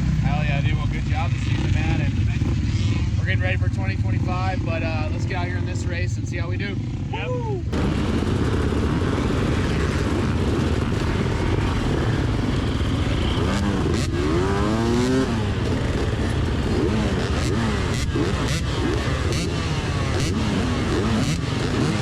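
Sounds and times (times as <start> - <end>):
dirt bike engines idling: 0.0 - 22.0
dirt bike revving: 0.0 - 22.0.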